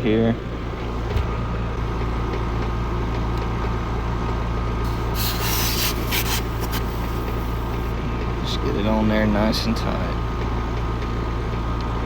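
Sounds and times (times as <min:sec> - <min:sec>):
air-conditioning unit humming: 0:00.0 - 0:12.0
refrigerant hissing: 0:04.9 - 0:07.9.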